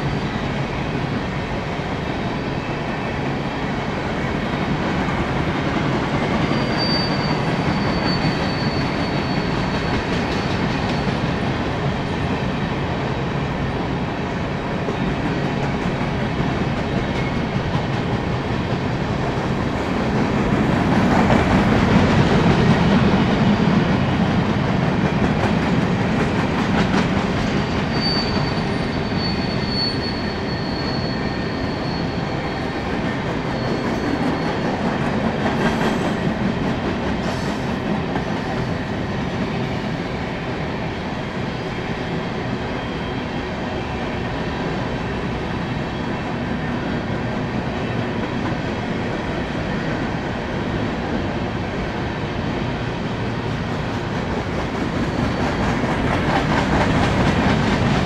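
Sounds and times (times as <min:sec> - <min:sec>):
freight train wheels rumbling: 0:00.0 - 0:58.0
thin high wheel squeal: 0:06.4 - 0:11.2, 0:27.7 - 0:34.8.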